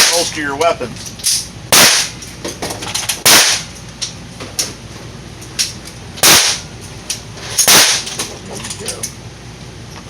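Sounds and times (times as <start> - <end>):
handgun shots: 1.8 - 2.2, 3.3 - 3.7, 6.2 - 6.6, 7.6 - 8.1.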